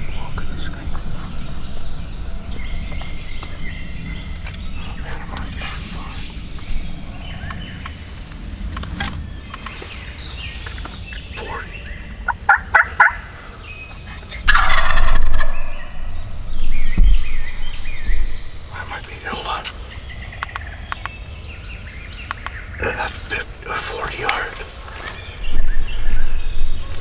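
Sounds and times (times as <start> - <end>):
songbirds chirping faintly: 0.0 - 27.0
turkey gobbling: 12.2 - 13.3, 14.5 - 15.8.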